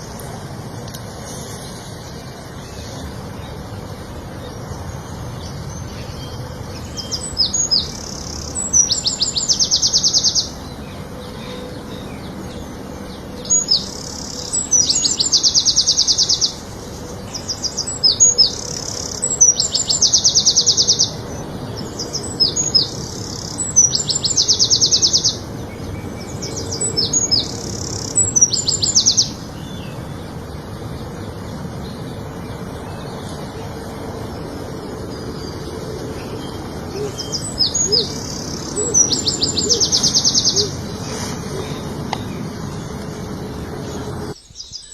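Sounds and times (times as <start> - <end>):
steady low hiss: 0.0 - 19.3
songbird singing a trill: 0.0 - 44.9.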